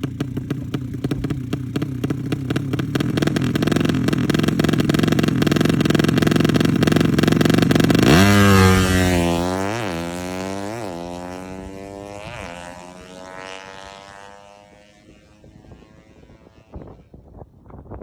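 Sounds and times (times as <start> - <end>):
motorcycle engine accelerating: 0.0 - 17.8
wind gusts on microphone: 15.0 - 18.0.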